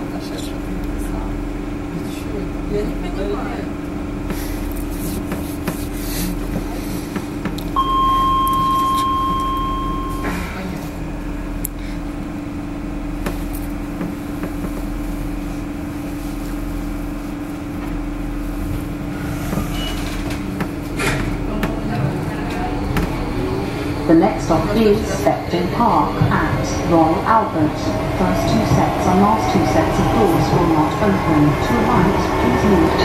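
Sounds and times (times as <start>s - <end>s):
electric train hum: 0.0s - 33.0s
high held tone: 7.8s - 10.5s.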